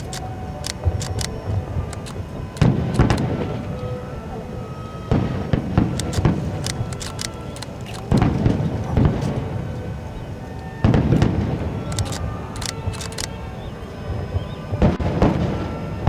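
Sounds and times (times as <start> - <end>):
fireworks crackling: 0.0 - 16.0
fireworks booming: 0.8 - 4.0, 5.0 - 7.0, 8.0 - 9.8, 10.8 - 12.9, 14.1 - 16.0.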